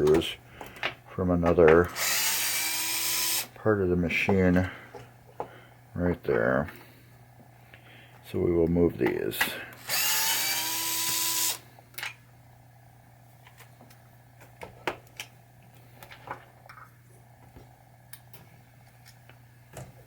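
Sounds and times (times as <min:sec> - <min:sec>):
steady low hum: 0:00.0 - 0:20.0
power drill whine: 0:01.9 - 0:03.5, 0:09.8 - 0:11.6.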